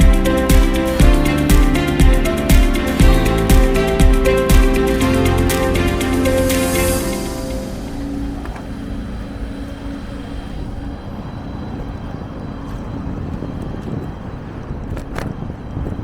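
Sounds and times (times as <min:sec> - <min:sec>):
faint held music tone: 0:00.0 - 0:14.1
bicycle road noise: 0:04.9 - 0:16.0.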